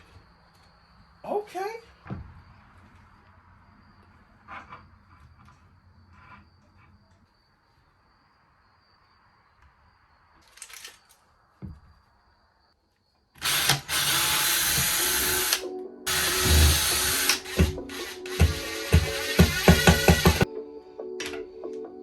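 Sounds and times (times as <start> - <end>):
power drill running: 13.4 - 20.5
music with a steady beat: 15.7 - 22.0.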